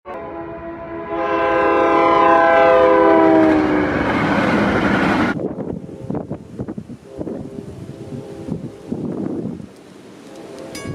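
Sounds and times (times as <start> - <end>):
train horn chord: 0.1 - 4.3, 5.7 - 9.4, 10.2 - 10.9
rush of train passing: 0.3 - 10.9
faint scattered clicks: 9.7 - 10.8.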